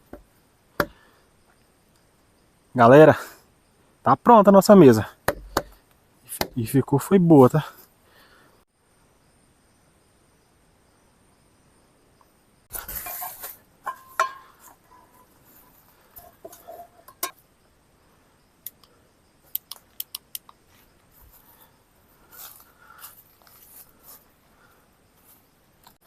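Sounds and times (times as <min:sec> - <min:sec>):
cookware clinking and knocking: 0:13.0 - 0:15.1, 0:16.2 - 0:17.4
small clicks: 0:18.6 - 0:20.6.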